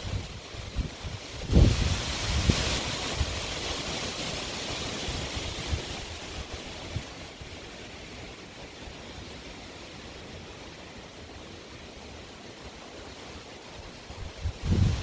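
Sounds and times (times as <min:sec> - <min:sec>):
wind buffeting microphone: 0:00.0 - 0:03.5, 0:14.0 - 0:15.0
strong gusty wind: 0:00.0 - 0:03.8, 0:13.8 - 0:15.0.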